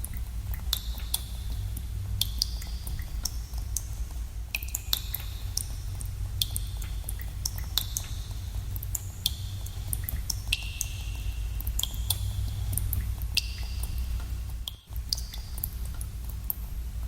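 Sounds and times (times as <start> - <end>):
low rumble: 0.0 - 4.6
water drops plinking in cave: 0.0 - 16.6.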